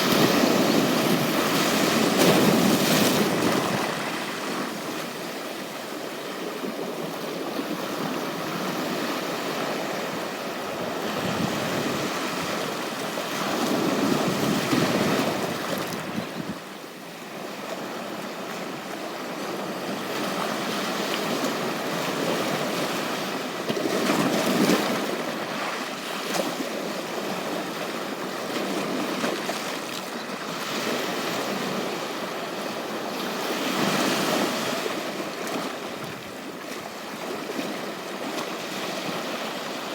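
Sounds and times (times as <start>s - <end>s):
ocean surf washing onto beach: 0.0s - 16.8s
large waves breaking: 0.0s - 39.9s.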